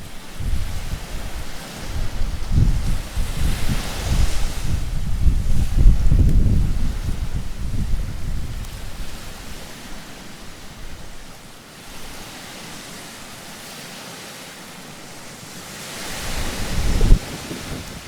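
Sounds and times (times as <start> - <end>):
wind buffeting microphone: 0.0 - 11.3, 15.4 - 18.0
waves washing on beach: 0.0 - 18.0
wave thump: 16.4 - 18.0.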